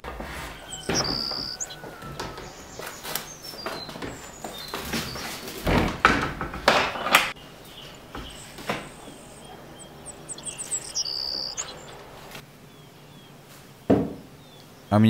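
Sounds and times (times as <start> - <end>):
scraping knocks: 0.0 - 12.4
small birds chirping: 0.0 - 15.0.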